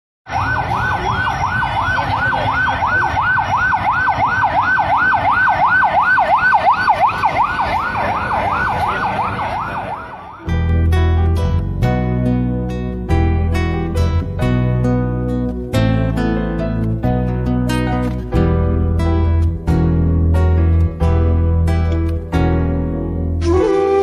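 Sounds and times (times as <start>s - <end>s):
emergency siren yelping: 0.3s - 10.8s, 23.4s - 24.0s.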